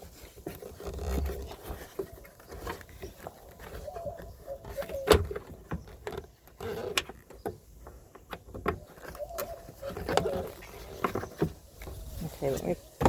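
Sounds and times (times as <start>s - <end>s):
plastic cap clicks and scrapes: 0.2s - 12.0s.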